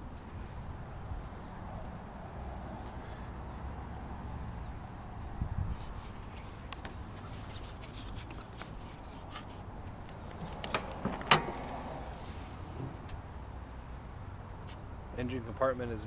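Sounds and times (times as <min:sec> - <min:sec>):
metal latch clunk: 0:10.3 - 0:13.3.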